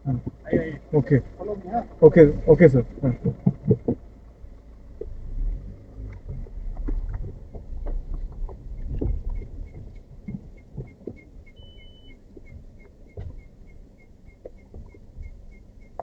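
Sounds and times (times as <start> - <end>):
faint ticking: 0.0 - 16.0
vehicle rumbling over rough road: 0.0 - 16.0
short beep: 11.5 - 12.2.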